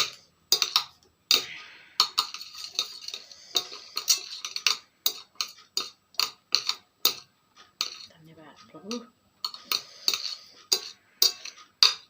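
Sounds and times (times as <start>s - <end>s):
utensil clinking against bowl: 2.1s - 8.1s, 8.7s - 12.0s.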